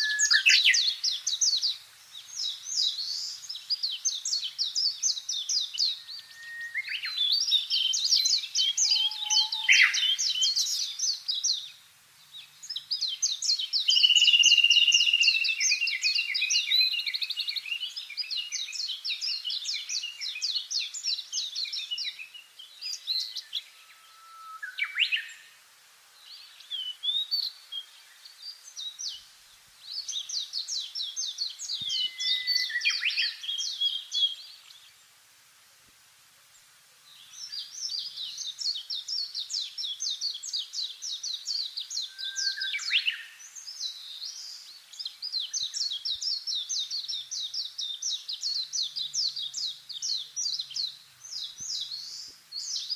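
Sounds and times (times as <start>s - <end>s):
songbirds chirping trills: 0.0s - 35.2s, 36.5s - 52.9s.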